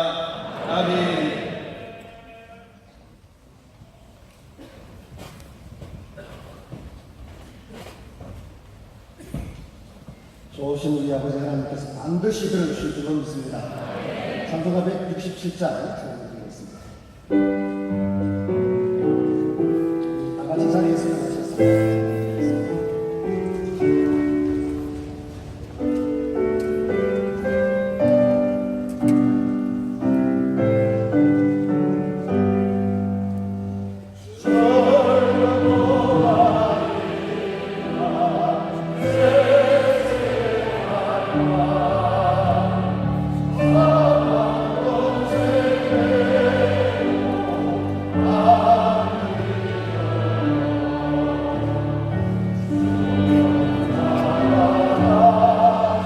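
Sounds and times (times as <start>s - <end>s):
congregation singing a hymn: 12.4s - 16.1s, 34.2s - 56.0s
keyboard playing hymn: 17.2s - 56.0s.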